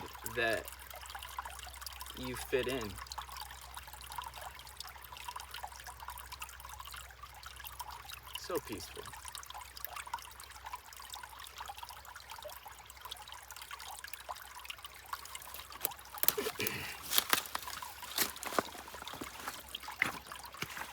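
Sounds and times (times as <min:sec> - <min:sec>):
stream trickling over rocks: 0:00.0 - 0:20.9
water splashing: 0:14.7 - 0:20.9.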